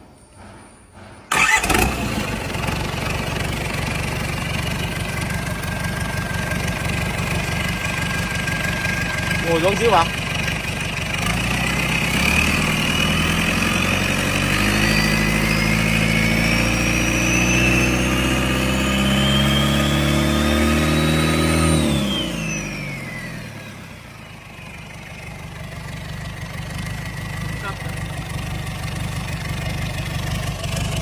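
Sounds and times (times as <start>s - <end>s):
engine revving with whine: 11.2s - 25.5s.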